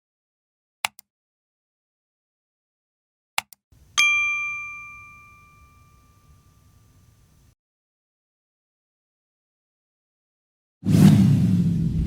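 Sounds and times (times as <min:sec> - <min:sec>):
bell ding: 0:03.8 - 0:07.4.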